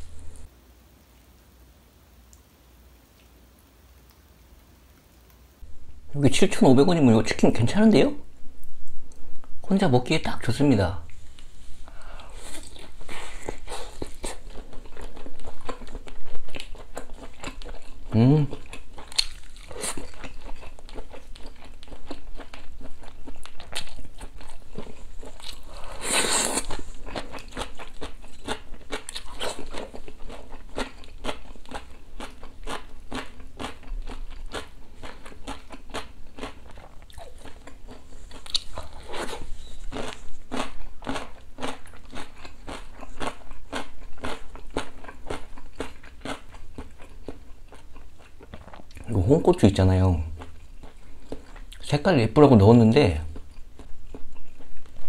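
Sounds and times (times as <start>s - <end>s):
crisp chewing crunches: 12.2s - 49.2s.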